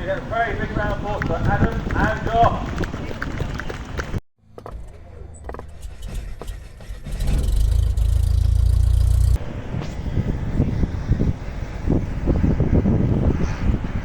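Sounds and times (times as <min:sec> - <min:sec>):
combustion engine humming: 0:04.4 - 0:13.0.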